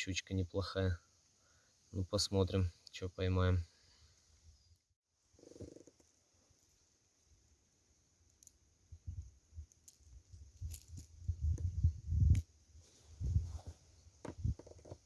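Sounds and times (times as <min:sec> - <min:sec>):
metallic clicks and clinks: 0:09.7 - 0:11.2.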